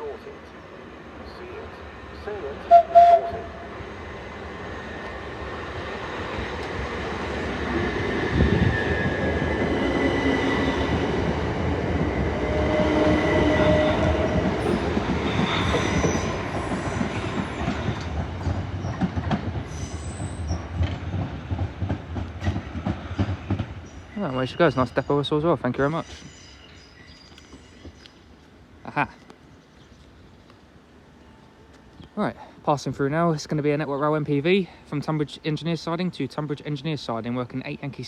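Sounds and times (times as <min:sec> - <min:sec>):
electric train pulling out: 0:02.1 - 0:21.2
train wheels squealing: 0:12.5 - 0:19.0, 0:19.7 - 0:20.8, 0:26.0 - 0:28.0.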